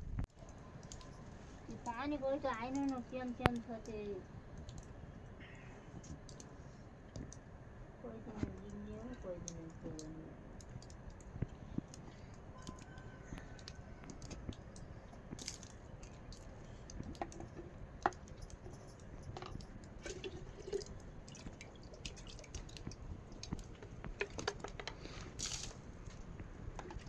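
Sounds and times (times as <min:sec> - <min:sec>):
water dripping: 0:00.2 - 0:07.5, 0:08.4 - 0:27.0
steady rain: 0:22.4 - 0:27.0.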